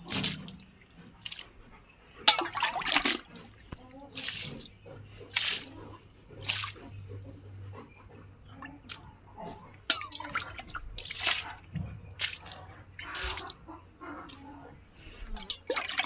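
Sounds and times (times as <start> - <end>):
water dripping: 0.0 - 1.5, 2.2 - 4.7, 9.9 - 13.6, 15.4 - 16.0
water splashing from a pot: 0.0 - 1.5, 2.2 - 4.7, 5.3 - 5.7, 6.4 - 6.8, 9.9 - 13.6, 15.3 - 16.0.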